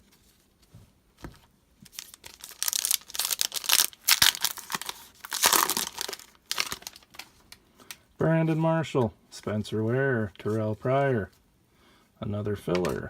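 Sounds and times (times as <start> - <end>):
wrapper tearing and crinkling: 1.9 - 7.5.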